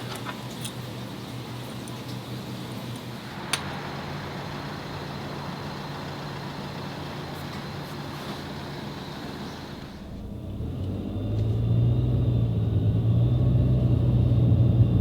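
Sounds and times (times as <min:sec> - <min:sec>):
car engine running: 0:03.2 - 0:15.0.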